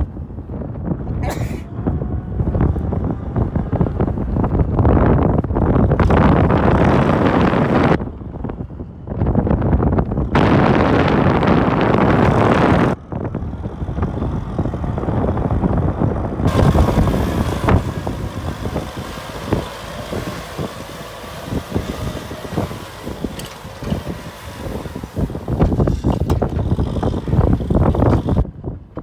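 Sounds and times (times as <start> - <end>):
tractor diesel engine under load: 0.1 - 28.6
knocks and rattles: 18.5 - 28.4.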